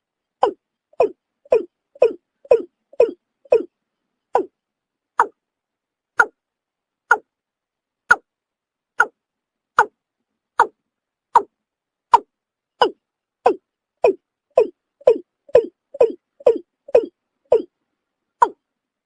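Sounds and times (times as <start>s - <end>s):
bird calling deep notes: 0.4s - 4.6s, 12.8s - 17.8s.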